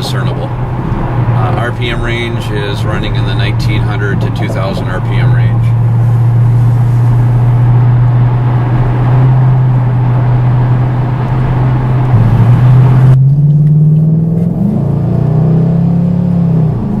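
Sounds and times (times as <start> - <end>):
car exhaust note from inside cabin: 0.0 - 15.3
road noise: 0.0 - 17.0.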